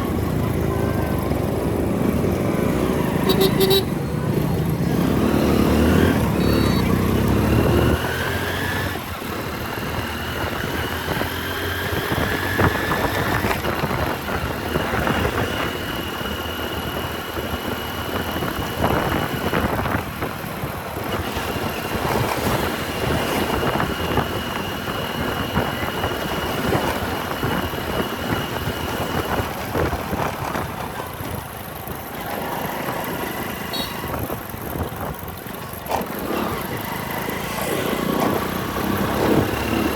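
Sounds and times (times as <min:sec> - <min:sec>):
motorcycle engine: 0:00.0 - 0:39.9
road noise: 0:00.0 - 0:39.9
wind noise: 0:05.9 - 0:36.7.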